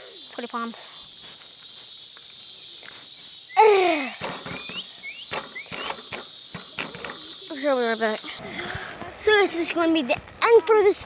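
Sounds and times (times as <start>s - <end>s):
faint rising chirps: 0.0s - 8.4s
crickets chirring: 0.0s - 11.0s.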